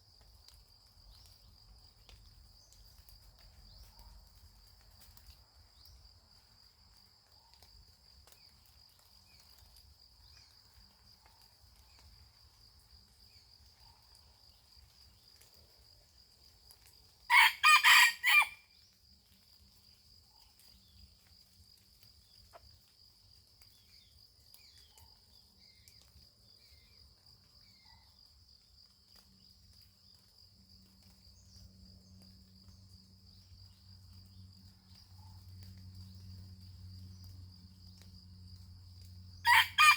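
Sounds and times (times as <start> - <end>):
rooster crowing: 17.3 - 18.6, 39.5 - 39.9.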